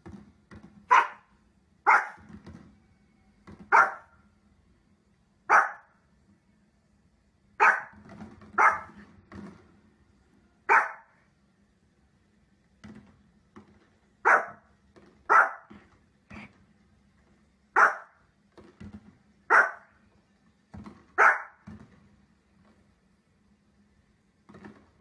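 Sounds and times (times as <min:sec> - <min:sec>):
small dog barking: 0:00.9 - 0:02.3, 0:03.7 - 0:04.2, 0:05.5 - 0:05.9, 0:07.6 - 0:09.0, 0:10.7 - 0:11.2, 0:14.2 - 0:14.7, 0:15.3 - 0:15.8, 0:17.8 - 0:18.2, 0:19.5 - 0:19.9, 0:21.2 - 0:21.6.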